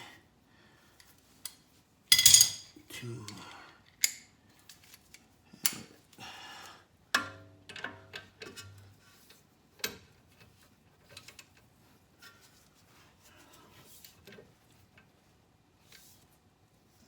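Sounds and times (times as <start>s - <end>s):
hand tools clinking on metal: 2.1s - 2.8s.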